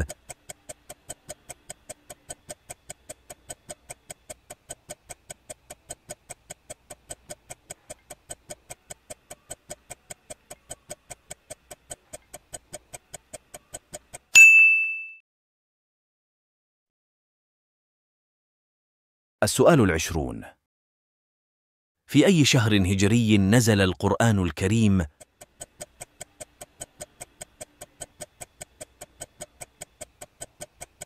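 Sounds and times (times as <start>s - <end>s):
countdown timer ticking: 0.0s - 14.4s, 23.4s - 31.0s
bright ding: 14.3s - 15.2s.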